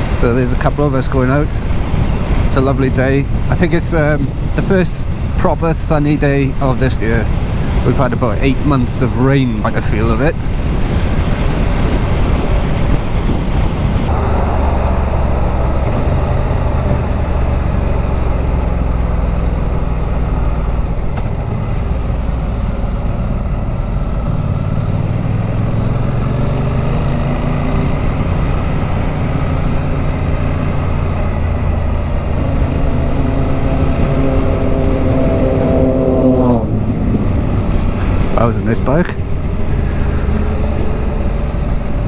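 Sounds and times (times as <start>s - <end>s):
wind rushing over microphone: 0.0s - 21.5s, 25.1s - 42.0s
motorcycle engine accelerating: 13.9s - 42.0s.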